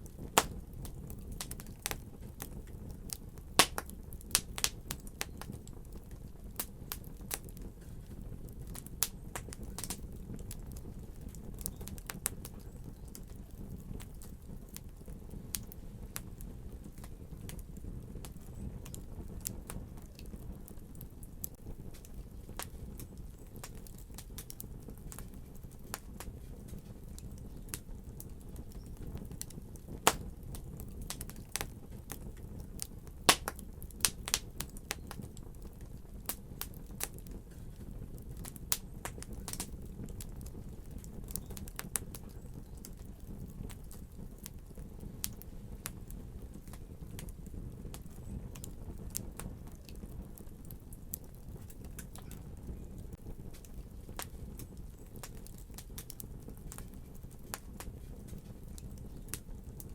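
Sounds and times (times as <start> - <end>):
low rumble of burning: 0.0 - 59.9
wood fire crackling and popping: 0.0 - 59.9.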